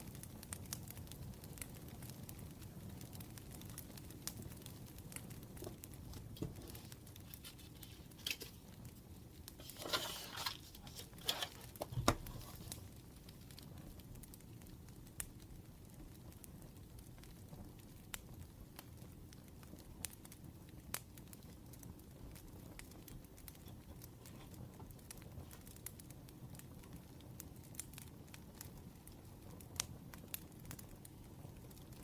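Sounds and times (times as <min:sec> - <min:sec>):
firewood crackling: 0:00.0 - 0:32.0
rustle and crinkle: 0:00.4 - 0:14.4, 0:21.3 - 0:26.7.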